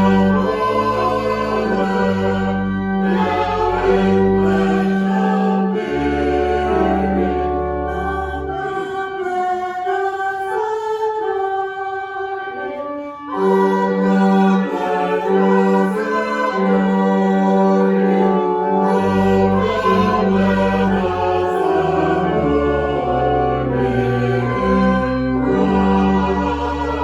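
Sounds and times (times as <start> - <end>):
low bass line: 0.0 - 8.6
choir singing: 0.0 - 27.0.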